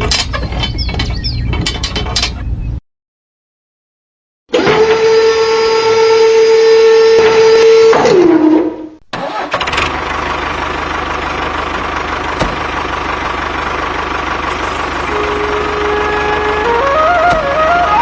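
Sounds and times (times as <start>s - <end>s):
small motor whining: 4.5s - 8.2s, 14.5s - 18.0s
engine running with low chug: 9.2s - 18.0s.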